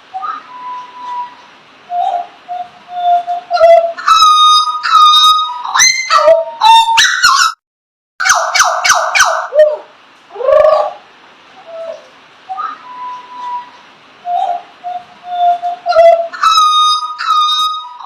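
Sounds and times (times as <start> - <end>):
bird singing whistled notes: 0.2 - 7.0, 12.5 - 18.0.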